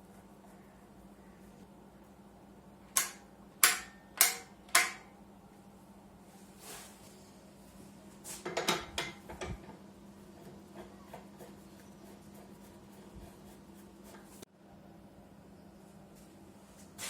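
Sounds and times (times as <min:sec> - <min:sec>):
faint steady hum: 0:00.0 - 0:17.0
metallic clicks and knocks: 0:02.9 - 0:05.1.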